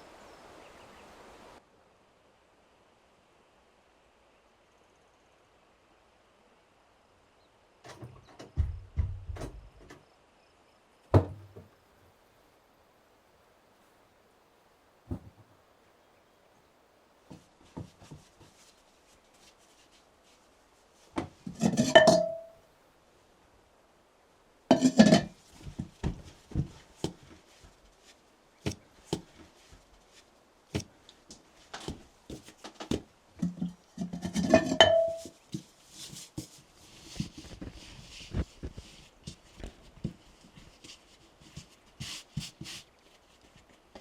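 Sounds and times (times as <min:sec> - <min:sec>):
dishes knocking and clinking: 0:21.2 - 0:22.6, 0:24.7 - 0:27.2, 0:31.8 - 0:35.4
dishes clattering and ringing: 0:21.5 - 0:22.6, 0:24.7 - 0:25.3, 0:34.1 - 0:35.3.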